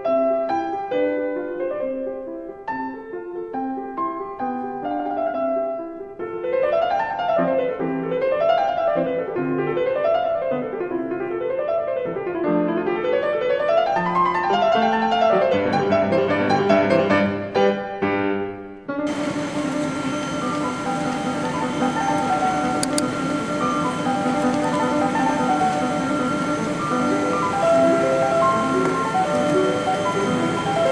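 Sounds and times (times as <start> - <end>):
solo piano music: 0.0 - 30.9.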